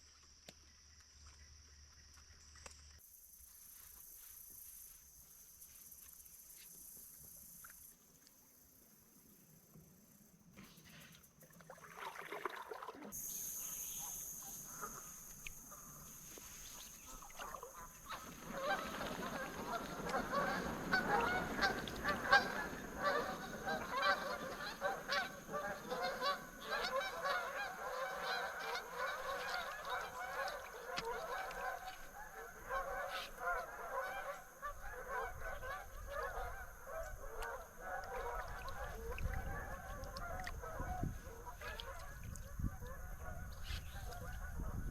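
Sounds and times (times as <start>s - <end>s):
flock of geese honking: 14.0s - 44.9s.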